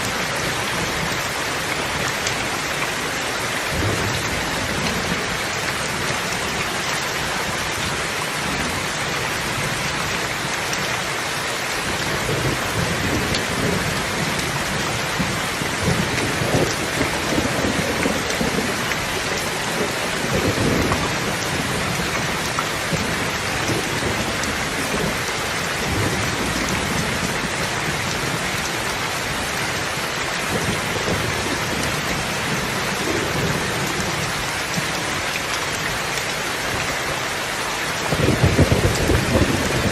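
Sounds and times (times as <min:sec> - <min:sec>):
heavy rain falling: 0:00.0 - 0:39.9
low rolling thunder: 0:12.2 - 0:25.2, 0:38.1 - 0:39.9.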